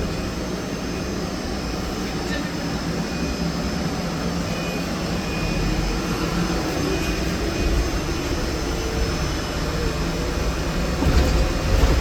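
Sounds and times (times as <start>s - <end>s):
tyres rumbling on road: 0.0s - 12.0s.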